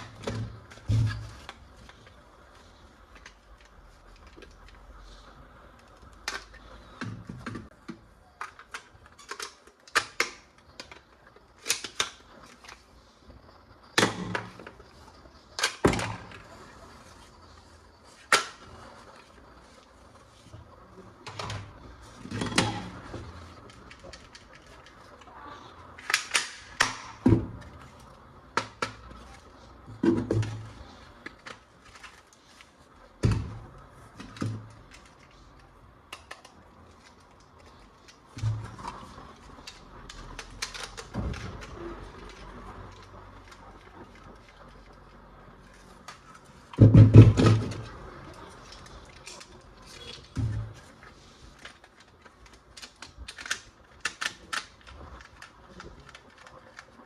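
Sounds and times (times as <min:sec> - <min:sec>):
plastic toy pieces clicking: 0:34.2 - 0:45.1, 0:47.5 - 0:50.4, 0:51.4 - 0:57.0.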